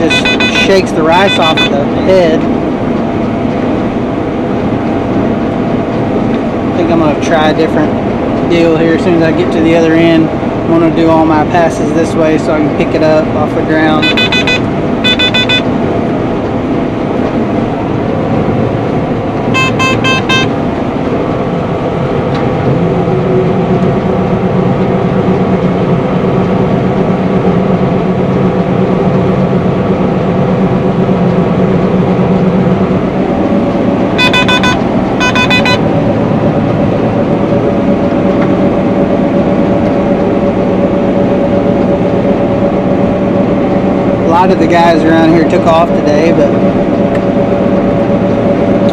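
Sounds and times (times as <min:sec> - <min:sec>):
rapid electronic warning beeping: 0:00.0 - 0:01.9, 0:13.8 - 0:15.7, 0:19.5 - 0:20.6, 0:34.2 - 0:36.6
combine harvester running: 0:00.0 - 0:48.9.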